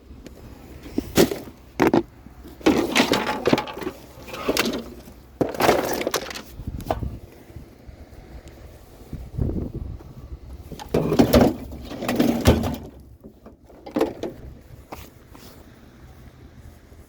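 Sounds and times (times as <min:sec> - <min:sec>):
scrap knocking and scraping: 0:00.7 - 0:07.4, 0:10.6 - 0:15.6
clunk: 0:01.0 - 0:07.2, 0:10.7 - 0:15.0.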